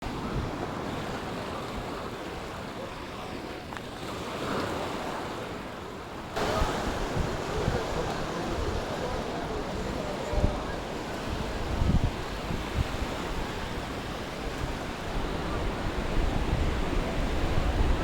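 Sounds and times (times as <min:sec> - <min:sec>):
surf washing onto beach: 0:00.0 - 0:18.0
wind buffeting microphone: 0:06.4 - 0:18.0.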